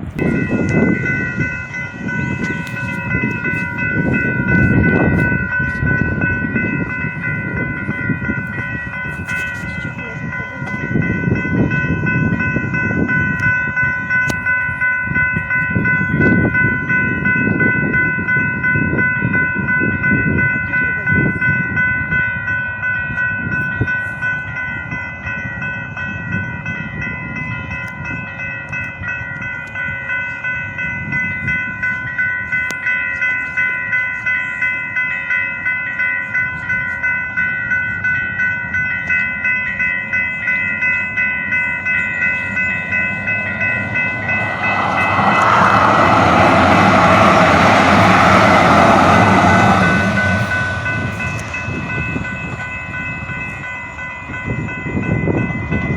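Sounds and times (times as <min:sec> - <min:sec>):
steady high whine: 0:41.8 - 0:54.4
rush of noise: 0:42.2 - 0:53.5
train wheels clattering: 0:42.3 - 0:53.0.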